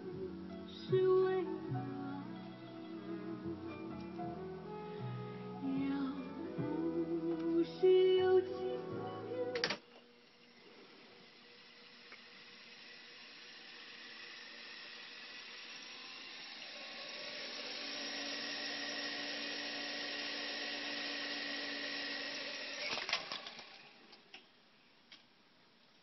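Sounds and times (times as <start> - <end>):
tape recorder hiss: 0.0 - 26.0
tape recorder clicks and clunks: 9.5 - 9.9.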